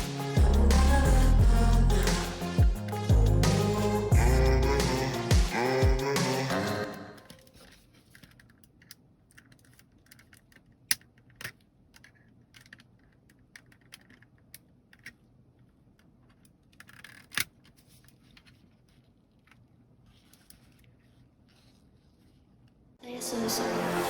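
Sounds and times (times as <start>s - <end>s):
computer mouse clicks and scratching: 7.0s - 22.8s.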